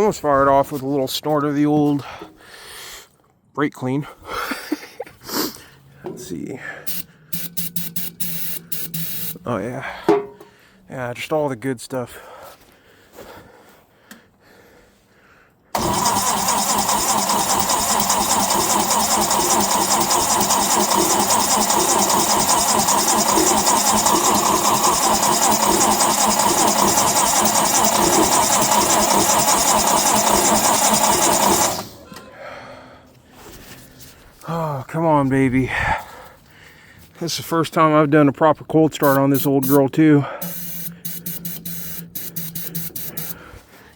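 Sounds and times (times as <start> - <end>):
engine cranking by starter: 6.8 - 9.4, 15.7 - 32.3, 39.0 - 43.5.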